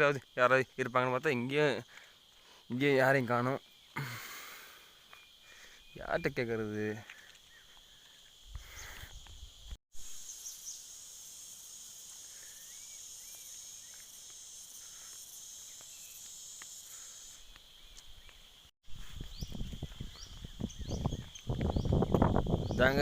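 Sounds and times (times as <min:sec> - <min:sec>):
insects chirring: 0:00.0 - 0:23.0
faint bird chirps: 0:03.4 - 0:10.9.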